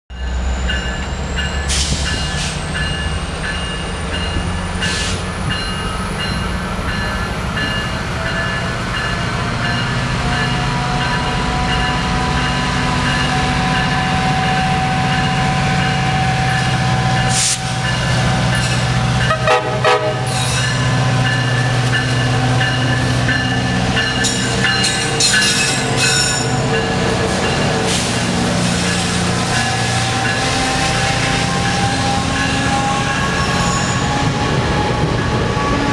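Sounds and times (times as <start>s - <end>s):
locomotive bell ringing: 0.1s - 35.8s
diesel locomotive running: 0.1s - 35.9s
locomotive horn: 19.2s - 20.5s, 29.3s - 35.9s.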